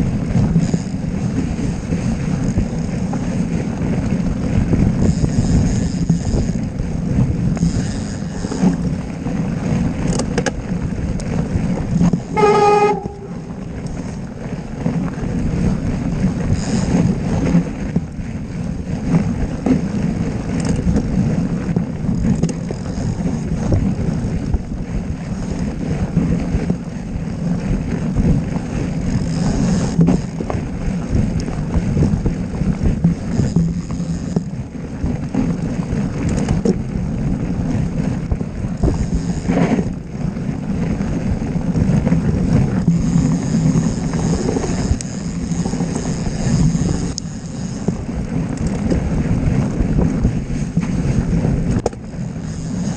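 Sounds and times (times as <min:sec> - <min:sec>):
wind buffeting microphone: 0:00.0 - 0:52.9
short horn toot: 0:12.3 - 0:13.5.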